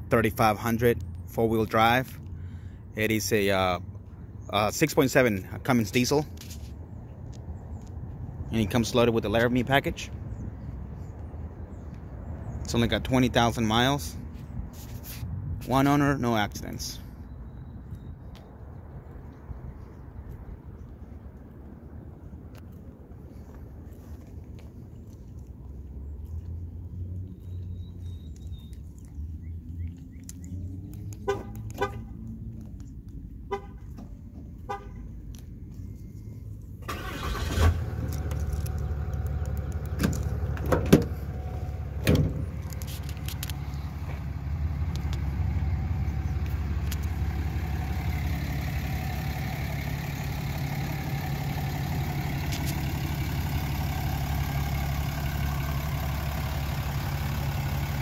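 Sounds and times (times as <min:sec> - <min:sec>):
horn toots: 0:31.2 - 0:32.2, 0:33.5 - 0:34.0, 0:34.6 - 0:35.1
diesel engine idling: 0:33.2 - 0:58.0.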